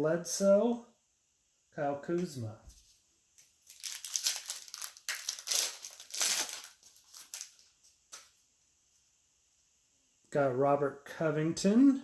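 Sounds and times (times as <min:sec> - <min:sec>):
plastic wrapper crinkling: 0:03.4 - 0:08.4.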